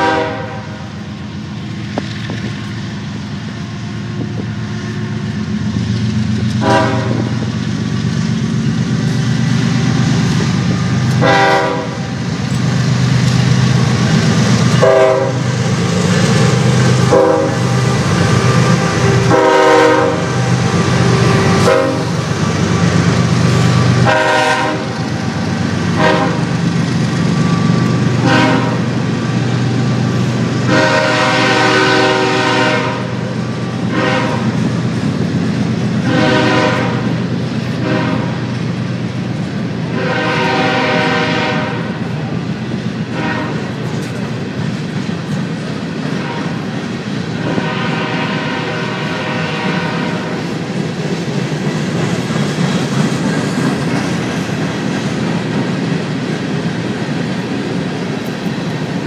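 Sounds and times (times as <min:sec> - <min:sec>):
train horn blasts: 0:00.0 - 0:01.0, 0:06.5 - 0:07.4, 0:11.1 - 0:12.1, 0:14.7 - 0:15.6, 0:16.9 - 0:22.9, 0:23.9 - 0:25.2, 0:25.9 - 0:26.6, 0:27.4 - 0:28.9, 0:30.6 - 0:34.7, 0:36.0 - 0:37.2, 0:37.8 - 0:38.5, 0:39.9 - 0:42.1, 0:43.1 - 0:44.0, 0:46.1 - 0:46.7, 0:47.4 - 0:50.5
diesel locomotive engine droning: 0:00.0 - 0:59.0
freight cars rumbling over rails: 0:00.0 - 0:59.0.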